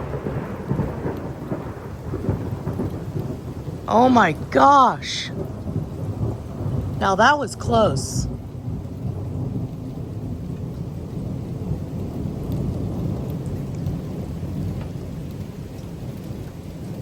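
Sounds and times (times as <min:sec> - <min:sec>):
rain pattering: 0:00.0 - 0:17.0
rolling thunder: 0:00.0 - 0:17.0.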